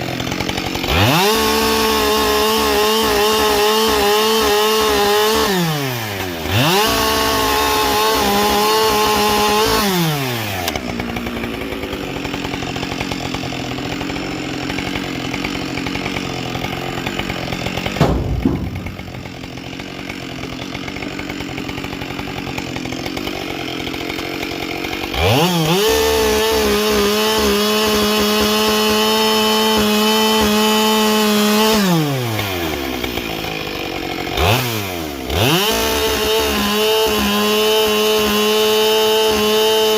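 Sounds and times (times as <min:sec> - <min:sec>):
chainsaw cutting wood: 0:00.0 - 0:39.9
sharp knock: 0:18.0 - 0:19.7.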